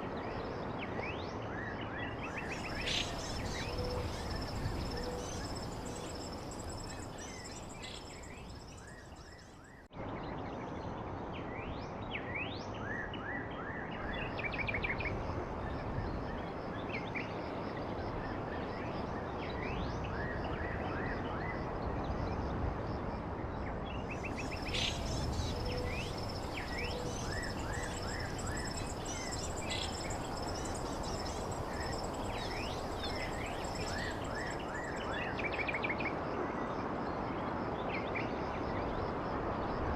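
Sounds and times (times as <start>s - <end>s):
background noise: 0.0s - 39.9s
bird chirps: 2.4s - 9.6s, 24.2s - 35.6s.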